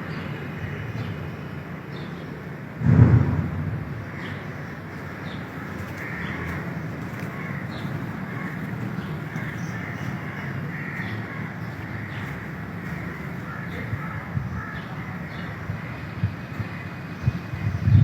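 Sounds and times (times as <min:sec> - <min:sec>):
low outdoor hum: 0:00.0 - 0:18.0
crows cawing: 0:04.0 - 0:17.6.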